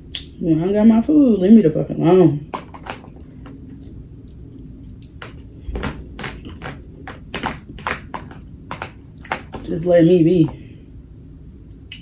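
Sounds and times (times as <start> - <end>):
mouth clicks and smacks: 0.1 - 0.4
person chewing: 2.6 - 9.6.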